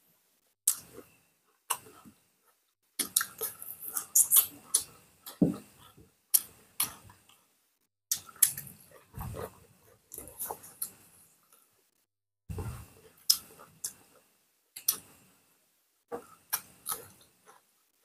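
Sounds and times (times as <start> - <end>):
wet chewing and lip smacks: 0.7 - 0.9.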